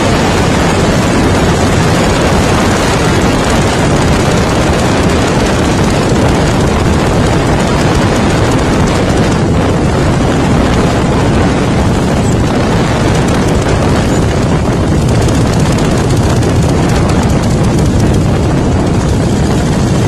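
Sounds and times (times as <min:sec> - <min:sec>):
motorcycle engine rumbling: 0:00.0 - 0:20.0.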